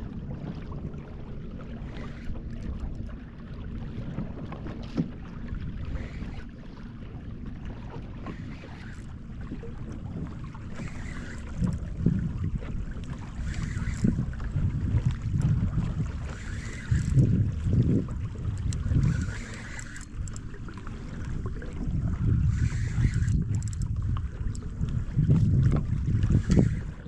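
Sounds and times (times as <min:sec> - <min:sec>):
water moving around kayak: 0:00.0 - 0:27.0
small knocks against hull: 0:04.2 - 0:05.4
wind buffeting microphone: 0:07.1 - 0:27.0.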